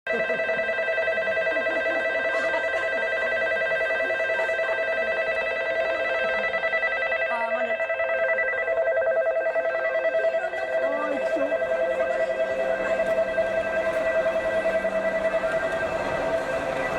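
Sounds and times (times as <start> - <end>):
faint voices: 0.1 - 16.9
electric bell ringing: 0.2 - 16.9.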